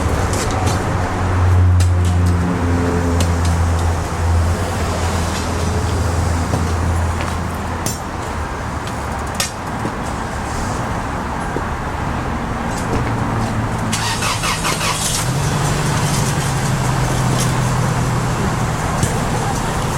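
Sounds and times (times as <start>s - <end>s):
large engine running: 0.0s - 19.9s.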